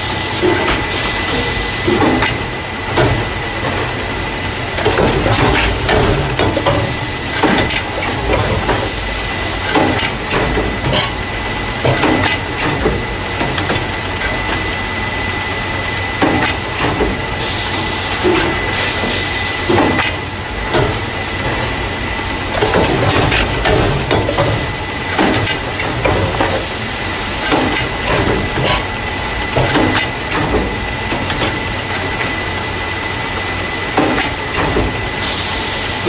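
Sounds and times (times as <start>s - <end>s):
machine clacks and knocks: 0.0s - 14.9s, 15.9s - 32.7s, 33.4s - 35.4s
machine mechanical din: 0.0s - 32.8s
hiss: 35.2s - 36.0s.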